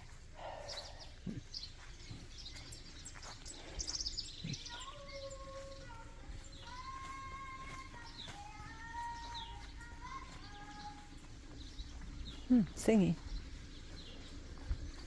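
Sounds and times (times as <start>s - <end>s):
bird trill: 0.0s - 15.0s
small birds chirping: 0.0s - 15.0s
girl singing long notes: 4.7s - 11.3s.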